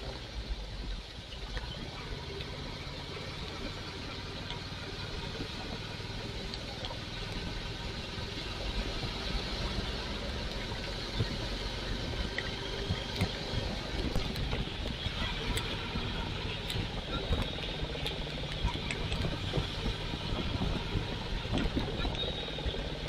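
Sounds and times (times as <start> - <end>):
motorcycle engine running: 1.7 - 23.0.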